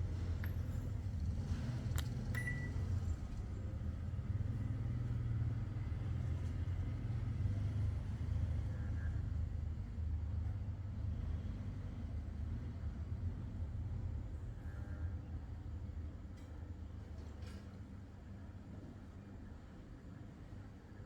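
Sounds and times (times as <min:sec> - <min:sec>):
click: 0:01.9 - 0:02.7.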